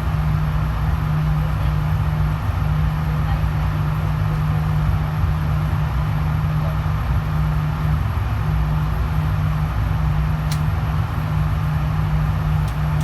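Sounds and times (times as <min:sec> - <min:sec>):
air handling hum and rumble: 0:00.0 - 0:13.0
faint click: 0:10.5 - 0:10.7.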